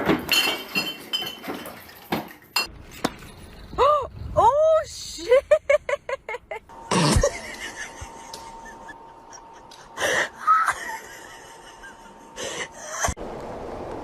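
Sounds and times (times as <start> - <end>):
person laughing in wheezing gasps: 8.6 - 13.2.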